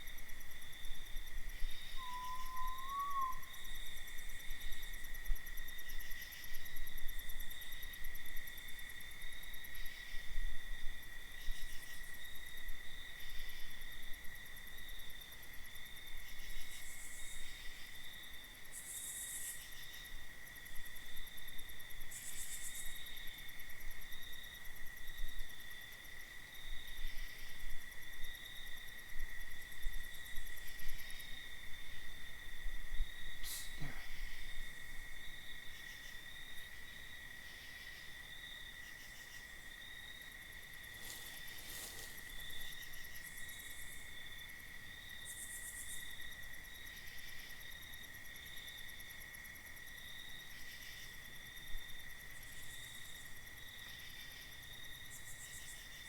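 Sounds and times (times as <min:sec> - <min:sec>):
crickets and insects trilling: 0:00.0 - 0:56.0
wavering whistled note: 0:02.0 - 0:03.6
soft hisses: 0:41.0 - 0:42.3.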